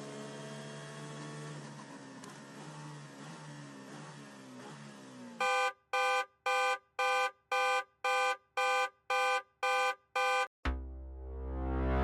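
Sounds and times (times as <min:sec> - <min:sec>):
electronic alarm beeps: 0:05.4 - 0:10.5.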